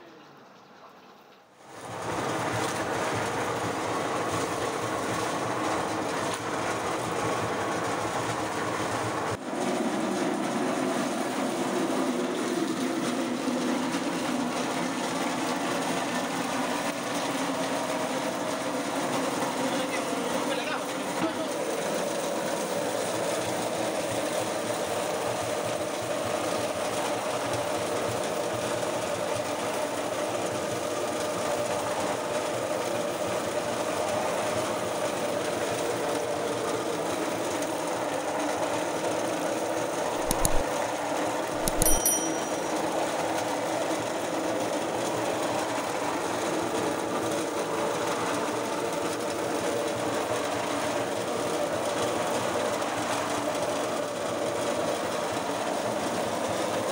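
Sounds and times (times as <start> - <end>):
sharp clicks: 40.2 - 40.6, 41.6 - 42.4.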